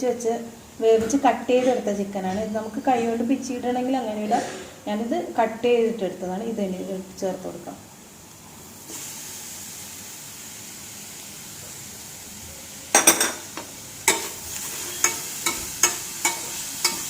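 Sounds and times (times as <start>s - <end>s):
food sizzling in a frying pan: 8.0s - 17.0s
spatula scraping and knocking pan: 13.0s - 17.0s.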